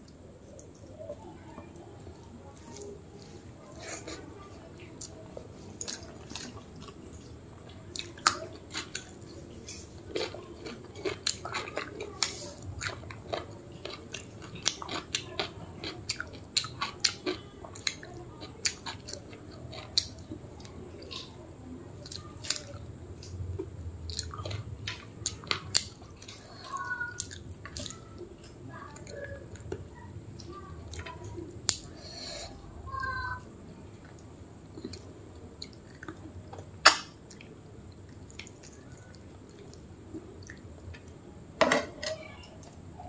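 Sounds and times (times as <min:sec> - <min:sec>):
wet chewing and smacking: 0:04.8 - 0:21.3, 0:34.0 - 0:41.1.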